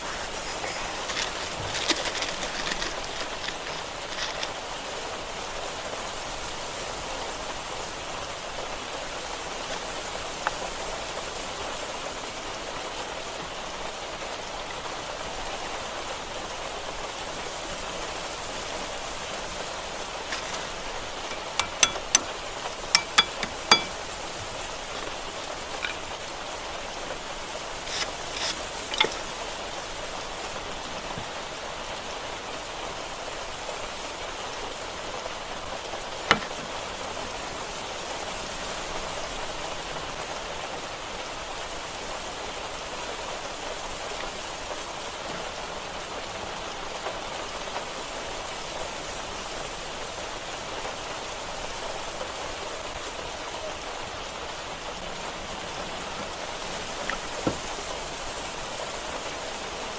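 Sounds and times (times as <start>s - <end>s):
steady rain-like hiss: 0.0s - 59.9s
sharp metallic clinks: 21.3s - 22.3s, 23.0s - 24.2s.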